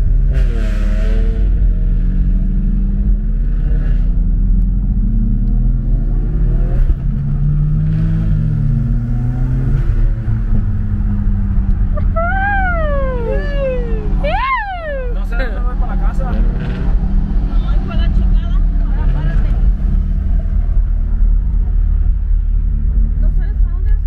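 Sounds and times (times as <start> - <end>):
wavering siren: 12.0 - 15.3.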